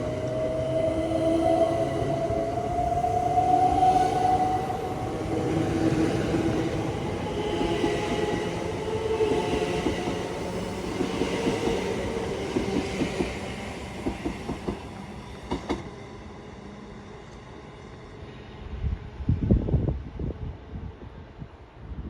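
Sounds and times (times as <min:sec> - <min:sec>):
electric train running on rails: 0:00.0 - 0:21.9.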